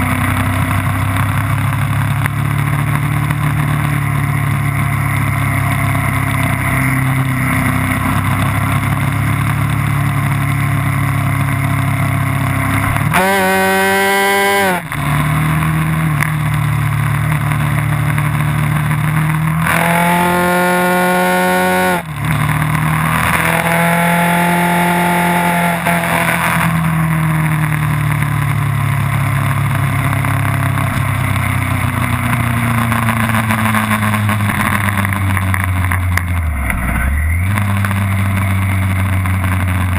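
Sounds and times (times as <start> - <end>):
race car engine at speed: 0.0 - 39.9
engine revving hard: 13.1 - 14.9, 19.6 - 22.1, 23.1 - 26.8.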